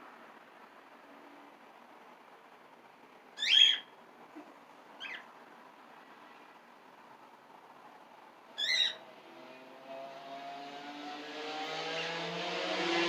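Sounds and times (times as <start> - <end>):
cockatiel shrill calls: 3.4 - 3.9, 8.6 - 9.0.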